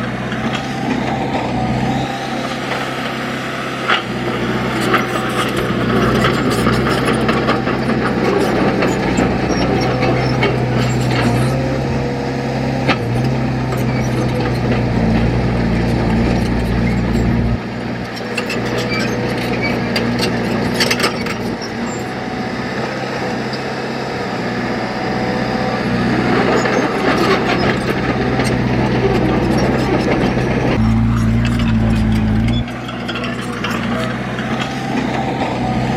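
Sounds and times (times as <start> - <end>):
heavy diesel machinery engine: 0.0 - 35.9
metal scraping: 26.6 - 35.9.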